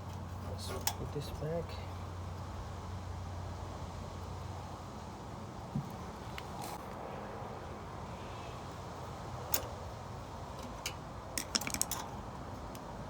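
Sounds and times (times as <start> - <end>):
steady background noise: 0.0 - 13.0
small parts and tools clicking: 10.6 - 12.9.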